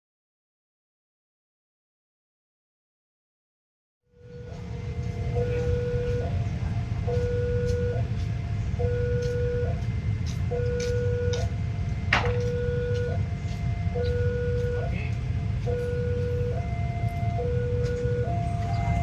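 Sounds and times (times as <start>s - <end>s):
level crossing two-tone alarm: 4.1s - 8.2s, 8.8s - 19.0s
low rumble: 4.1s - 19.0s.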